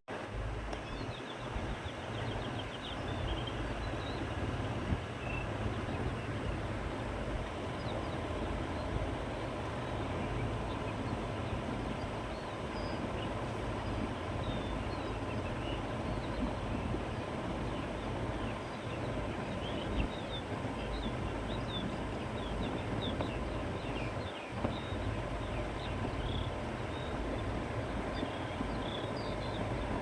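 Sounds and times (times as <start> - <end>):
wind blowing: 0.1 - 30.0
faint bird chirps: 0.8 - 6.7.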